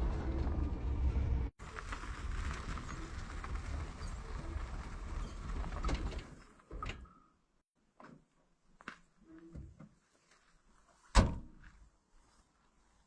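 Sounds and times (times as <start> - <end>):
vehicle rumble: 0.0 - 5.9.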